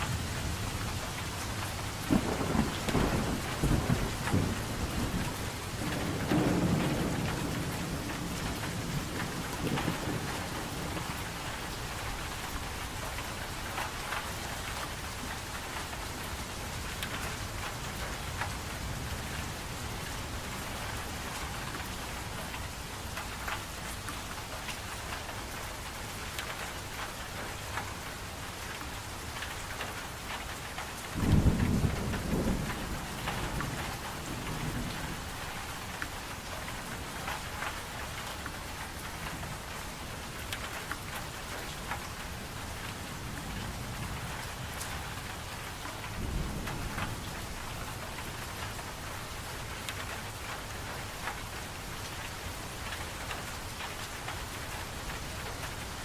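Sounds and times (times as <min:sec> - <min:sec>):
steady rain falling: 0:00.0 - 0:56.0
low roll of thunder: 0:01.8 - 0:12.7, 0:31.2 - 0:35.9, 0:42.8 - 0:48.6.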